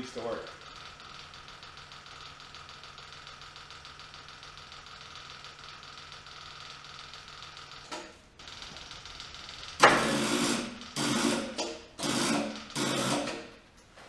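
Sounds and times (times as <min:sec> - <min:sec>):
electric fuel pump ticking: 0:00.0 - 0:13.6.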